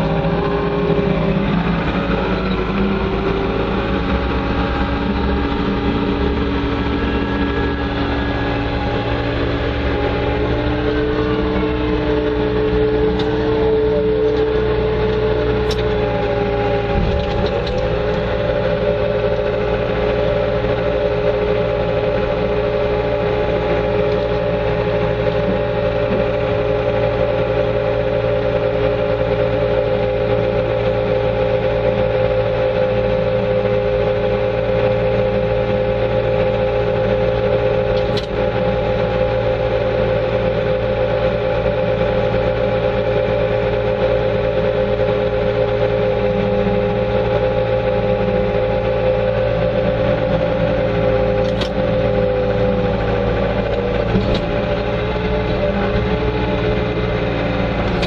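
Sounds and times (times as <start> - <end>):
loader engine running: 0.0 - 58.0
click: 15.1 - 16.0, 38.0 - 38.4, 51.4 - 51.8.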